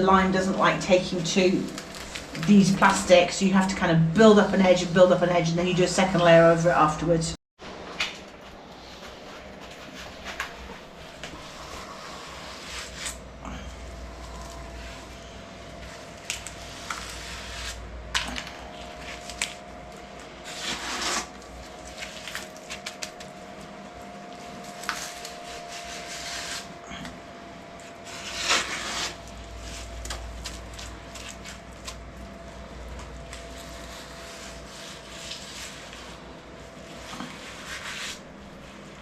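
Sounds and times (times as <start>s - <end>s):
tool scraping wet render: 20.4s - 21.4s, 28.0s - 29.2s.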